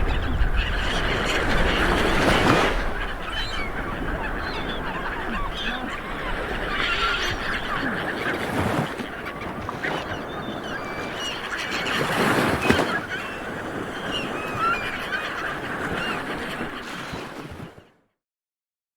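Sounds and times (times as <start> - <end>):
wave breaking: 0.0 - 10.2
birds calling: 0.0 - 16.8.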